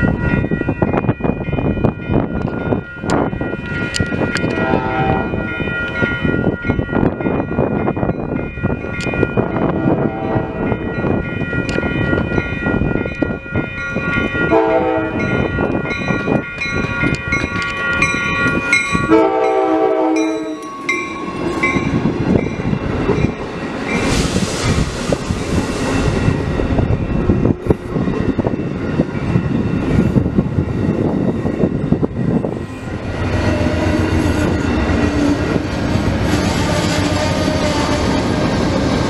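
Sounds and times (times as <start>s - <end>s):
train rumble and wheel clatter: 0.0s - 39.0s
train horn blasts: 4.4s - 5.6s, 9.6s - 10.7s, 14.5s - 15.4s, 19.1s - 20.7s
hiss: 24.0s - 26.1s.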